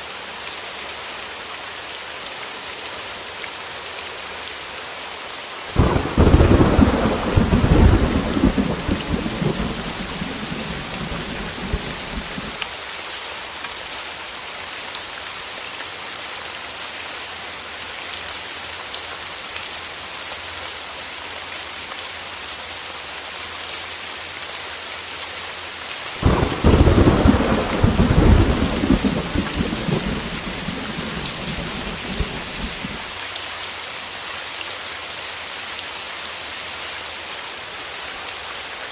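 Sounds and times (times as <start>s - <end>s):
heavy rain: 0.0s - 38.9s
thunder rumbling: 5.8s - 12.6s, 26.2s - 33.1s.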